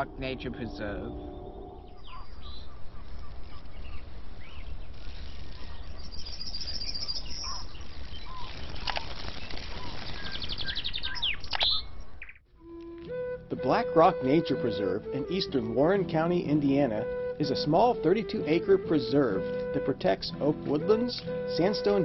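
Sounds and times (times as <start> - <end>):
wild birds chirping and calling: 0.0 - 12.5.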